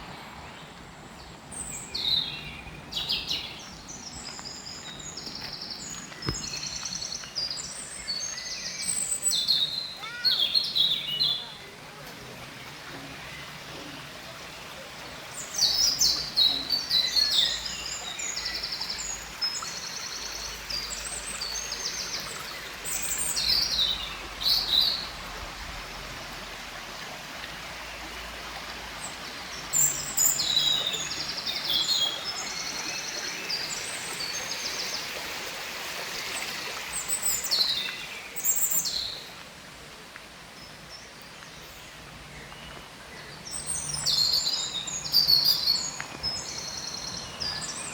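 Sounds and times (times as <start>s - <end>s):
songbird trills and chirps: 0.0s - 11.7s, 15.4s - 25.1s, 40.6s - 47.9s
outdoor background hiss: 0.0s - 47.9s.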